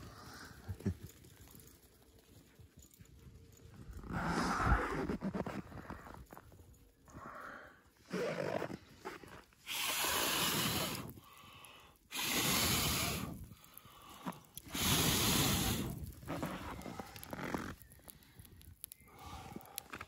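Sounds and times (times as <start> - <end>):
person blowing breath into microphone: 9.6 - 17.2.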